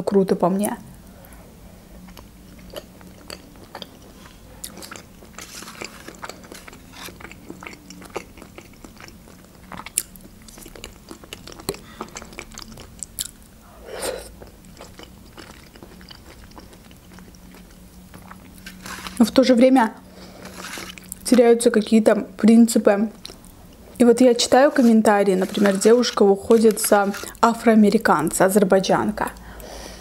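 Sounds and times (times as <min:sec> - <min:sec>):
woman chewing soft food: 0:01.9 - 0:19.3, 0:20.0 - 0:21.3, 0:23.2 - 0:27.4.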